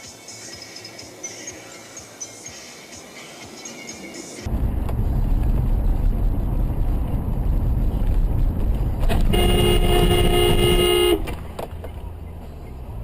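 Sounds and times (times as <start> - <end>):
car engine and road noise: 0.0 - 13.0
car horn blast: 9.1 - 11.4.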